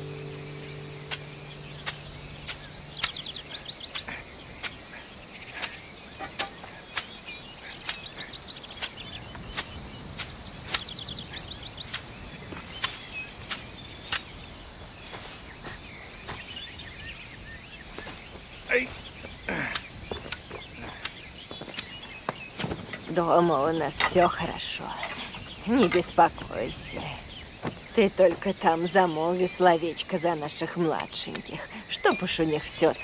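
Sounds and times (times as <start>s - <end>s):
bird trills: 0.0s - 4.9s
high insect drone: 0.0s - 33.0s.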